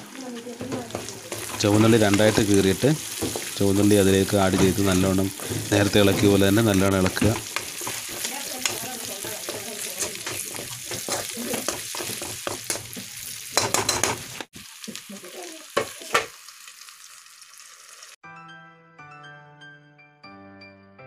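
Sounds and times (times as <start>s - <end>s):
shallots sizzling in hot oil: 0.0s - 18.2s
metal spatula scraping wok: 0.6s - 14.4s.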